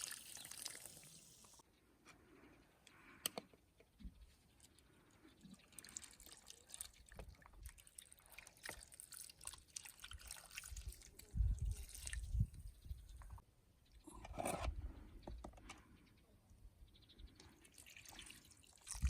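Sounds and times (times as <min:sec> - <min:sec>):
water trickling and dripping: 0:00.0 - 0:01.6, 0:04.6 - 0:12.7, 0:17.4 - 0:19.0.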